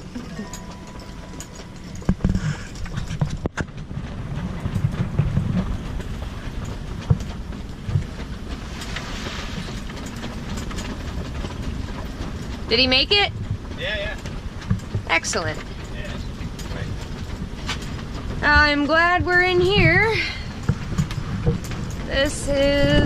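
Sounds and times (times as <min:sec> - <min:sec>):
sharp knocks and clicks: 0:00.0 - 0:09.0, 0:09.7 - 0:23.0
wind roaring over microphone: 0:00.0 - 0:23.0.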